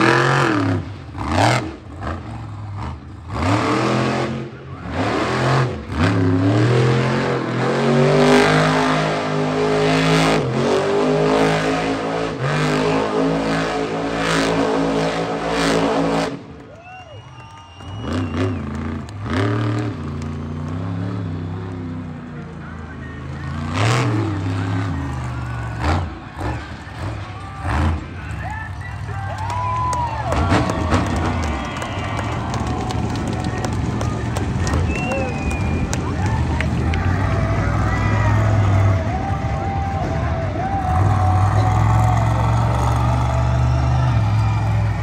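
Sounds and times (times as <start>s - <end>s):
truck engine revving: 0.0s - 45.0s.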